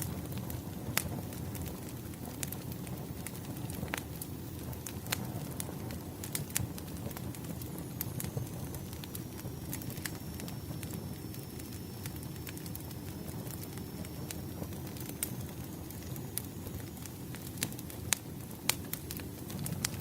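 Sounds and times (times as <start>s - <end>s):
fire crackles and pops: 0.0s - 20.0s
low rumble of flames: 0.0s - 20.0s
thin high whistle: 8.0s - 17.0s.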